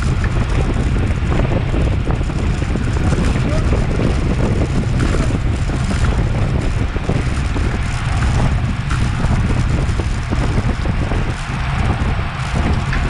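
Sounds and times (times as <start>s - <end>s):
road and tyre noise: 0.0s - 13.0s
wind buffeting microphone: 0.0s - 13.0s.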